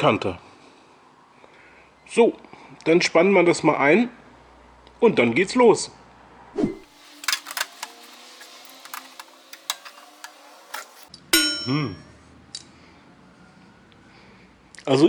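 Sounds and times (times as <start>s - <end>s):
metal clamp clicking and clanking: 7.1s - 11.1s.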